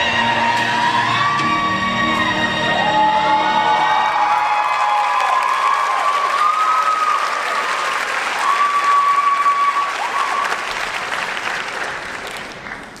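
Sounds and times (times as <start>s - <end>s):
high calls from audience: 2.8s - 10.8s
audience applauding: 2.8s - 13.0s.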